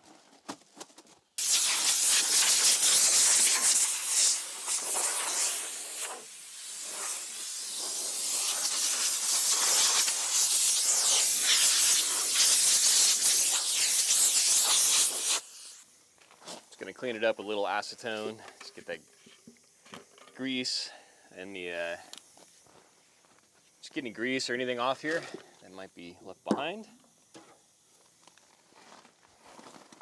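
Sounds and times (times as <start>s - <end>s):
pressurized spray hissing: 1.4s - 15.8s.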